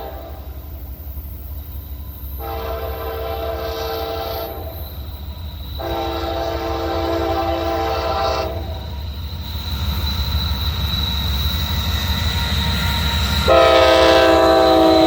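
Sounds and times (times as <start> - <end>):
locomotive air horn: 0.0 - 0.6, 2.4 - 4.8, 5.8 - 8.8, 13.4 - 15.0
train rumble: 0.0 - 15.0.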